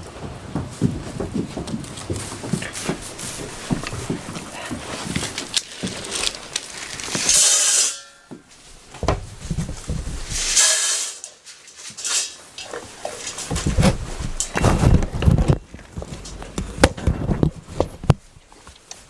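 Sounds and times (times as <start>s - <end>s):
goat hoof knocks and shuffling: 0.0s - 10.5s, 11.6s - 19.0s
short hissing bursts: 10.4s - 11.4s.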